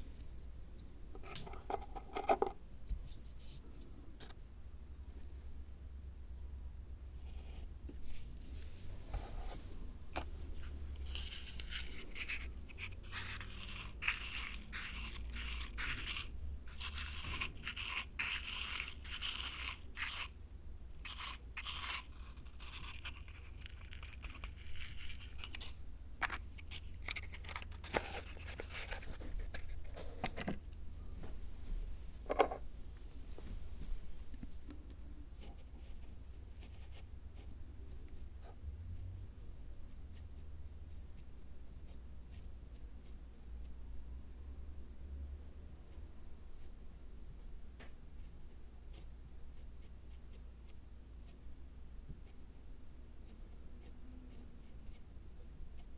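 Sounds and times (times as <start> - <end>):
scraping and rustling hand work: 7.2 - 20.4, 21.0 - 38.6.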